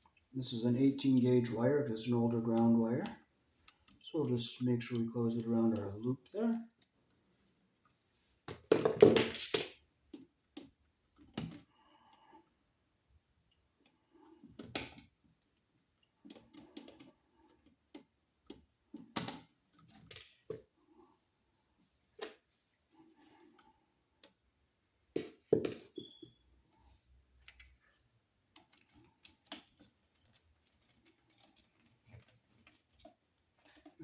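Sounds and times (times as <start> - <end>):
clicks and knocks of hand work: 13.8 - 21.0, 22.1 - 34.0.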